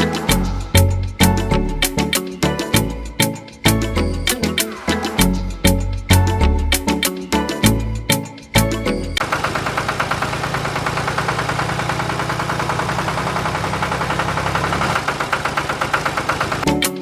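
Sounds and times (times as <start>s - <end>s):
small engine running: 9.2s - 16.8s.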